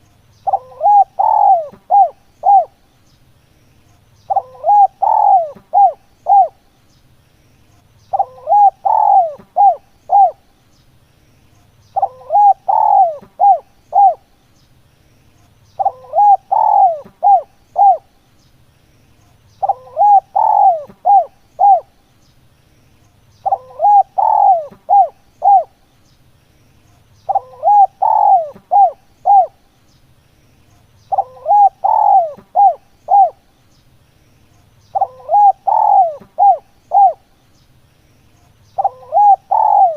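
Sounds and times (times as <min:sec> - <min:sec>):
dove cooing: 0:00.0 - 0:02.8, 0:04.3 - 0:06.6, 0:08.1 - 0:10.5, 0:12.0 - 0:14.3, 0:15.8 - 0:18.1, 0:19.6 - 0:22.0, 0:23.4 - 0:25.8, 0:27.2 - 0:29.6, 0:31.1 - 0:33.5, 0:34.9 - 0:37.3, 0:38.8 - 0:39.9.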